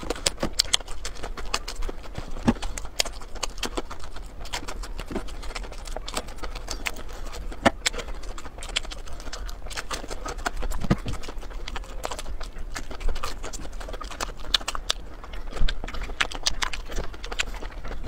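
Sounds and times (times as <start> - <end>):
crunching fried breaded food: 0.0 - 18.0.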